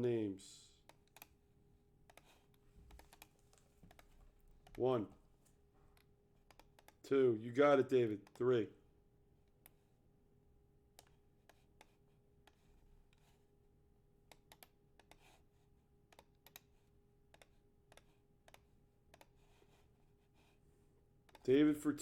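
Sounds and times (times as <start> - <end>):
faint steady hum: 0.0 - 22.0
computer clicks: 0.9 - 1.3, 2.1 - 2.3, 2.9 - 4.8, 6.0 - 7.0, 14.3 - 15.2, 16.1 - 16.7.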